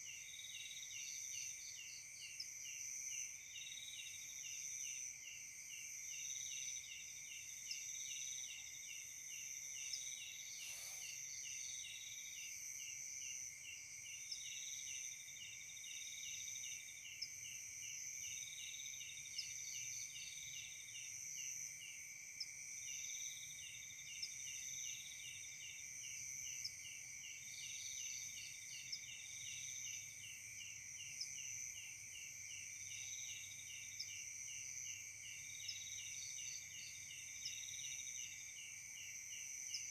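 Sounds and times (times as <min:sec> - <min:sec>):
crickets trilling: 0:00.0 - 0:39.9
insect chirping in rapid pulse: 0:00.0 - 0:39.9
insect trilling on and off: 0:09.7 - 0:12.2.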